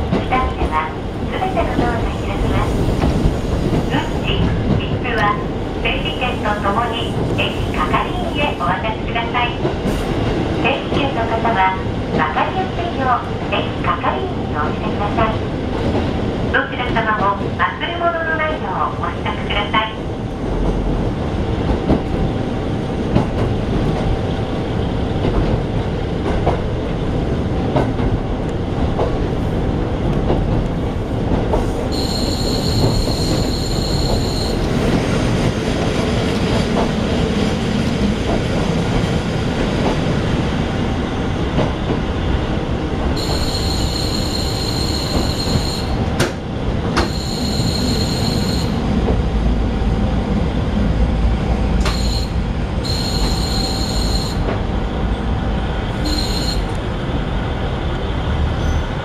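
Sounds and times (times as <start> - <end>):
railcar rumble from inside: 0.0 - 59.0.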